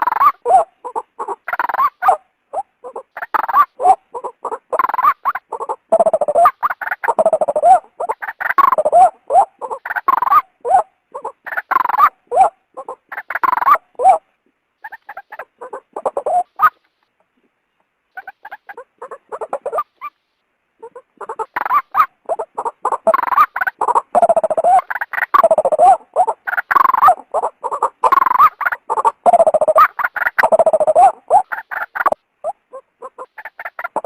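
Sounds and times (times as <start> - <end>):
waterhen calling harsh notes: 18.2 - 20.2, 20.8 - 34.0.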